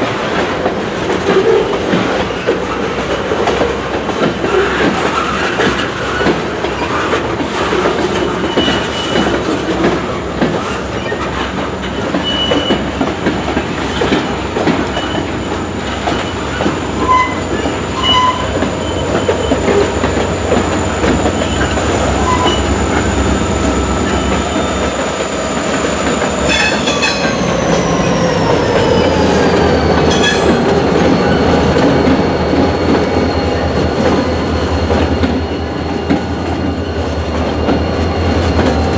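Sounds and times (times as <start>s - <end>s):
train low rumble: 0.0s - 38.9s
high wheel squeals: 8.2s - 9.4s, 11.9s - 12.9s, 13.8s - 38.9s.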